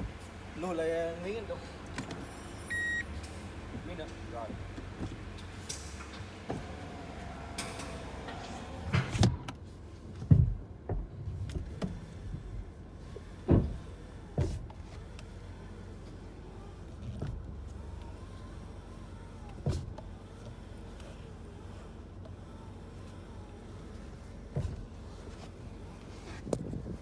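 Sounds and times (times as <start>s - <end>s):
steady low hum: 0.0s - 27.0s
car steering clunks: 13.2s - 15.4s.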